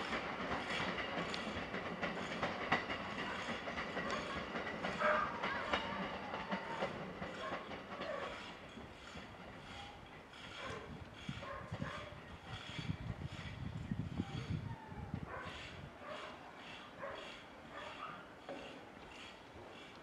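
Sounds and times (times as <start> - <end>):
electric train running: 0.0 - 10.6
wheels clicking over rail joints: 0.0 - 20.0.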